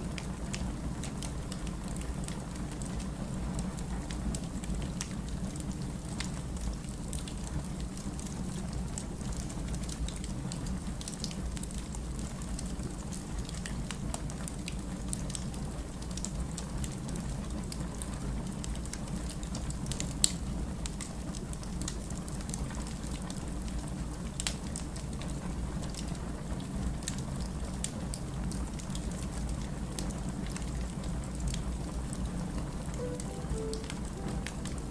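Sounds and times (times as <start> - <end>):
fire crackling and popping: 0.1 - 26.2.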